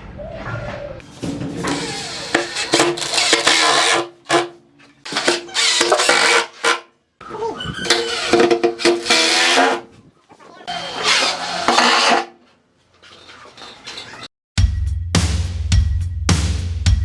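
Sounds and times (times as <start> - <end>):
power tool rasping on wood: 1.6 - 4.5, 5.1 - 6.8, 7.9 - 9.9, 10.7 - 12.3.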